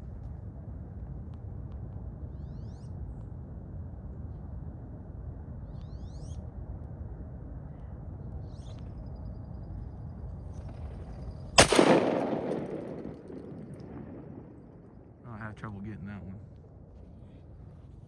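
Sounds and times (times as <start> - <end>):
low steady background noise: 0.0 - 18.0
shotgun shot: 11.6 - 15.2.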